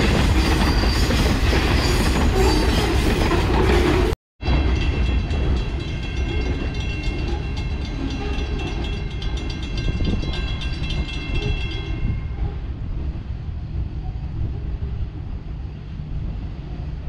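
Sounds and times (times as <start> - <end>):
freight train rumbling: 0.0 - 17.0
high ringing tone from wheels: 4.4 - 12.5.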